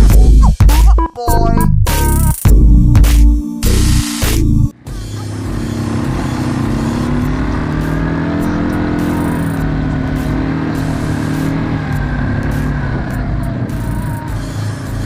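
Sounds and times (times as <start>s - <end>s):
quad bike engine running: 4.8s - 15.0s.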